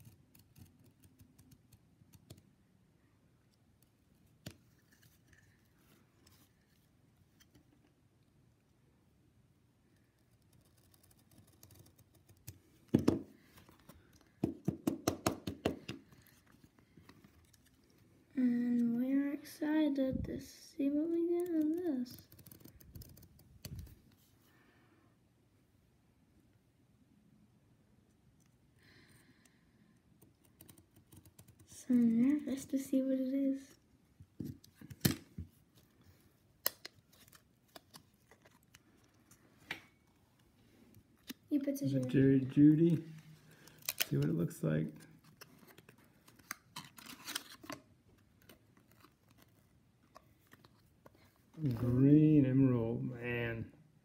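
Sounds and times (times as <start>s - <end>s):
card tearing: 45.2s - 49.6s.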